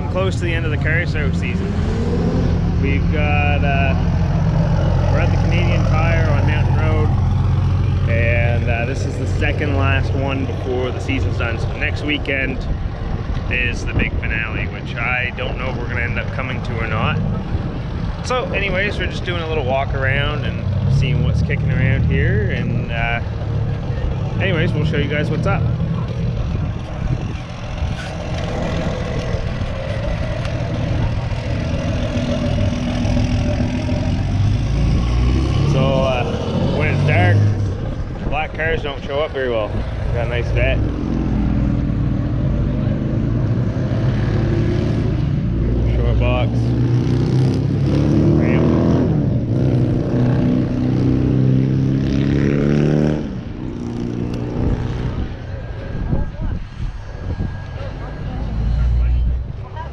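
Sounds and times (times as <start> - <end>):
car engine running: 21.4 - 41.1.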